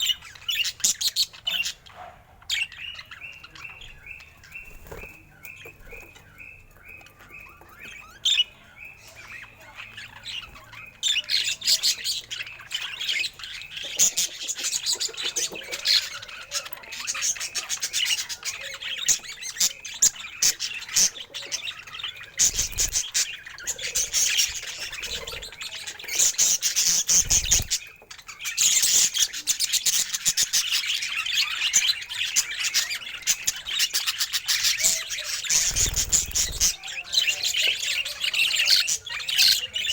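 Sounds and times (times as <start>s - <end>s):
budgerigars chattering and warbling: 0.0s - 39.9s.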